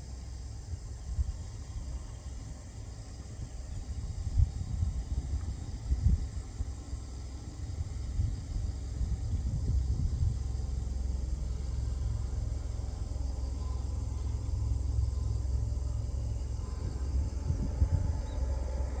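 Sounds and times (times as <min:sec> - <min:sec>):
insect chirring: 0:00.0 - 0:19.0
low rumble: 0:07.8 - 0:19.0.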